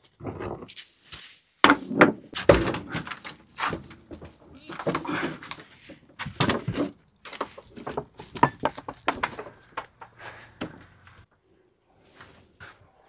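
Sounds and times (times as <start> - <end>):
stones knocking and clunking: 1.6 - 11.2.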